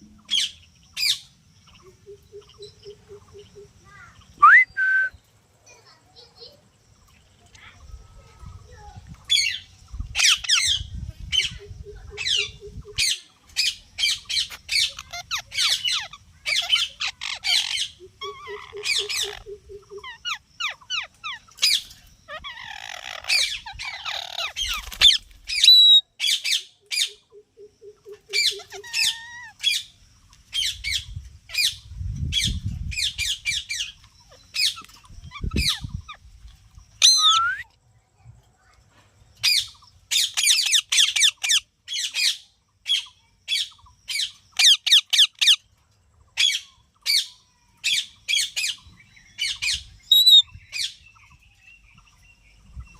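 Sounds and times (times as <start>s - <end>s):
parrot squawking: 14.1s - 26.0s, 27.0s - 29.7s, 37.0s - 37.6s, 40.2s - 42.2s, 44.6s - 45.6s, 50.1s - 50.4s.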